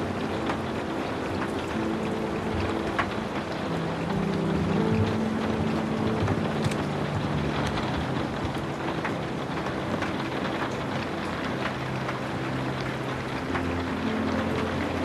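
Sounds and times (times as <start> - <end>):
ambient sleep music: 0.0 - 15.0
steady rain falling: 0.0 - 15.0.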